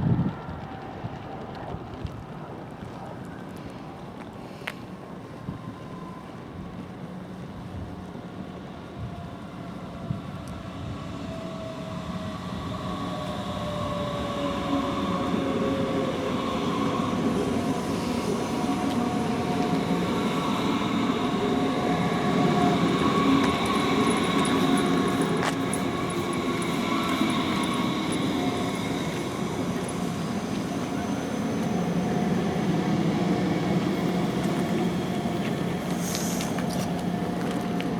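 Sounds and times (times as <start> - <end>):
train rumble: 0.0 - 37.9
thin whining tones: 11.1 - 37.9.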